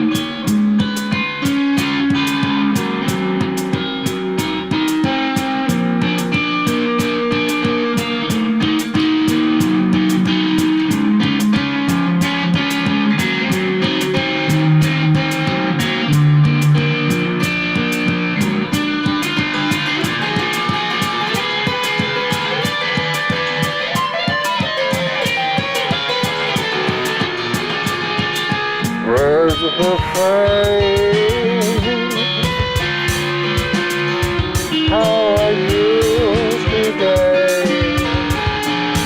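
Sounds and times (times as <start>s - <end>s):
electric guitar music: 0.0s - 39.0s.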